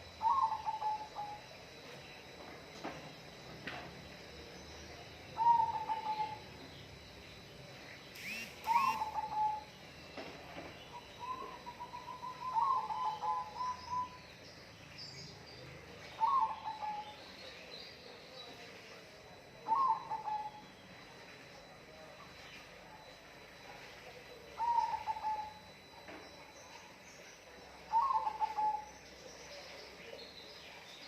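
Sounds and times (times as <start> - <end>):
sharp bird chirps: 7.9 - 15.4
bird calling in stuttering notes: 8.2 - 9.5.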